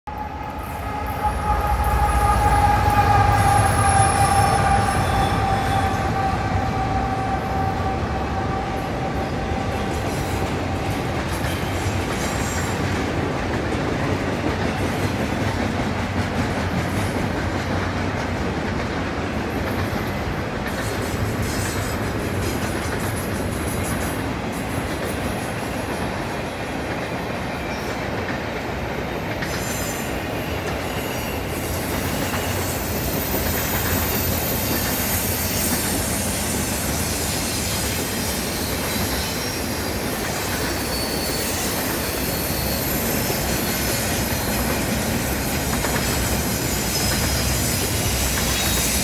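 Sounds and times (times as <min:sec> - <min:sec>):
locomotive whine: 0:00.0 - 0:13.3, 0:29.5 - 0:49.0
diesel locomotive engine: 0:00.0 - 0:49.0
train cars rumbling on rails: 0:00.1 - 0:49.0.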